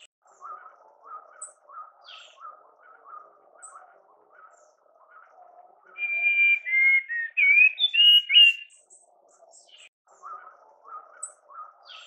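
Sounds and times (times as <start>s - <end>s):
songbird whistling phrase: 6.0s - 8.7s.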